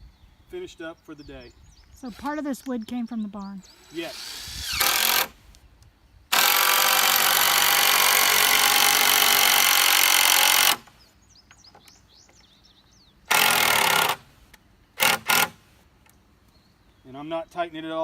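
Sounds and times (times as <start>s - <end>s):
power drill driving screws: 3.7s - 5.4s, 6.3s - 10.9s, 13.3s - 14.3s, 15.0s - 15.6s.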